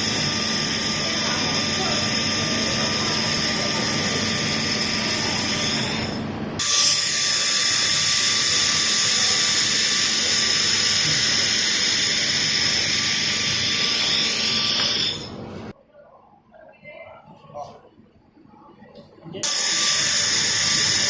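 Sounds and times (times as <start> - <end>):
welding hiss: 6.8 - 15.2, 19.4 - 21.0.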